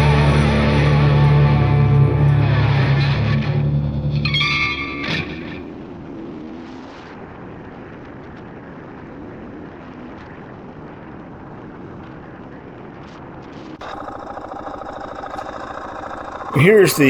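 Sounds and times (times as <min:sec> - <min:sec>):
motorcycle engine running: 0:13.8 - 0:16.6.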